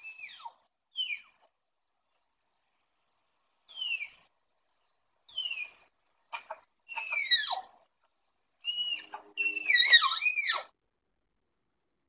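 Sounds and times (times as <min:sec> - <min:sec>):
animal squeals sliding down: 0:06.9 - 0:07.7, 0:08.6 - 0:10.7.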